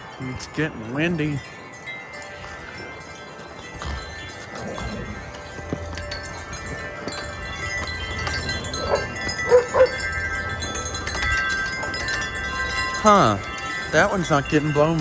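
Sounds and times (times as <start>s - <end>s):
wind chimes ringing: 0.0s - 15.0s
wind rumbling on microphone: 1.8s - 15.0s
dog barking: 8.8s - 10.0s.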